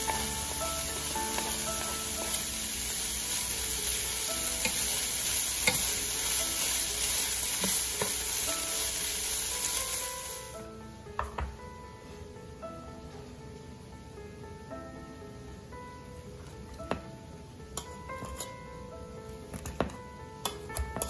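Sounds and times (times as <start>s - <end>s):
meat sizzling in a frying pan: 0.0s - 10.6s
soft background music: 0.0s - 21.0s.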